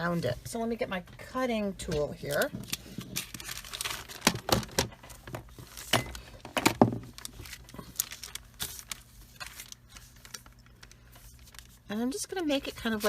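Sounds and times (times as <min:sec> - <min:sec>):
paper being handled: 0:07.0 - 0:13.0.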